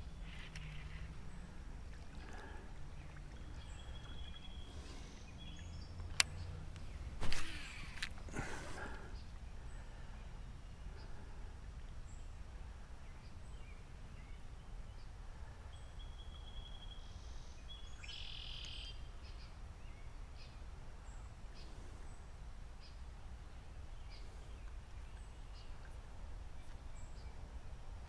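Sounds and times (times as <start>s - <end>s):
birds chirping: 0.0s - 28.0s
bird trill: 16.0s - 19.1s.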